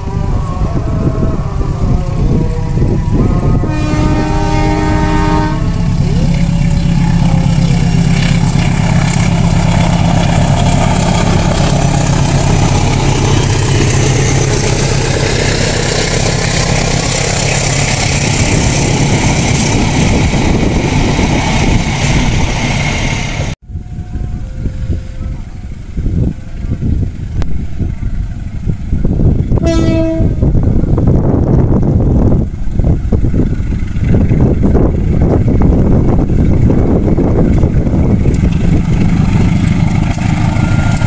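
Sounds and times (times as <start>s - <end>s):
train wheels rushing on rails: 0.0s - 24.1s, 24.7s - 41.0s
train engine drone: 0.0s - 41.0s
locomotive horn blast: 0.8s - 8.1s, 29.6s - 30.5s.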